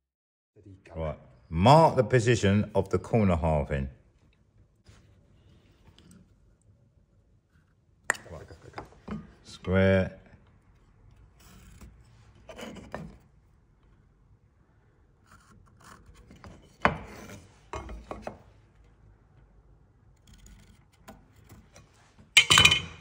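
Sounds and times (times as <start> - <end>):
wood rubbing on wooden bench: 10.9 - 13.5, 15.2 - 18.5
pencil scratching on wood: 11.2 - 13.3, 15.2 - 18.3.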